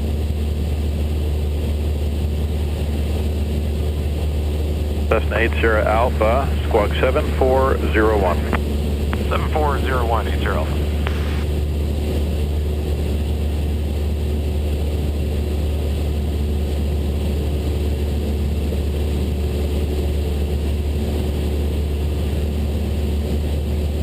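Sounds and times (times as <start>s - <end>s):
aircraft engine and propeller drone: 0.0s - 24.0s.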